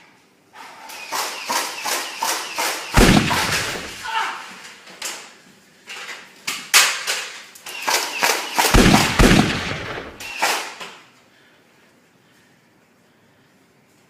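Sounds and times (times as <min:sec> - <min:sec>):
gunshots and bangs: 0:02.9 - 0:04.0, 0:08.6 - 0:10.7.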